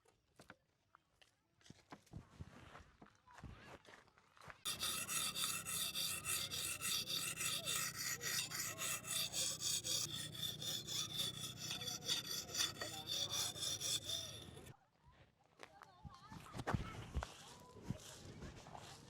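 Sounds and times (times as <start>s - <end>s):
hand saw cutting wood: 4.7s - 14.7s.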